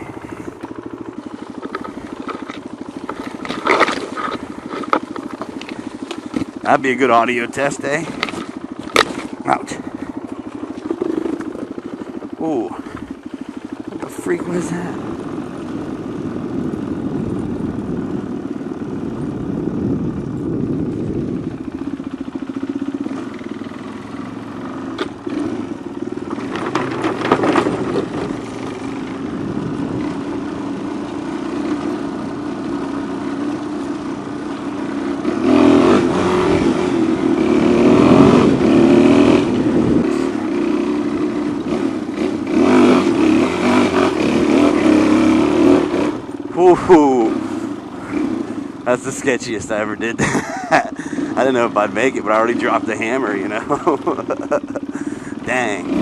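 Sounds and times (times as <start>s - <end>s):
motorcycle engine revving: 0.0s - 56.0s
scraping clatter: 1.5s - 6.6s, 26.2s - 28.7s.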